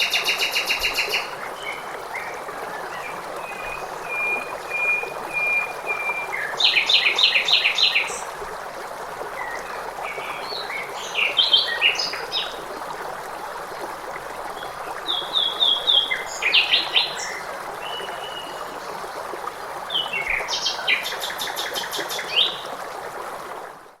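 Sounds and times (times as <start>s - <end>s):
songbird singing: 0.0s - 8.2s
stream flowing: 0.0s - 24.0s.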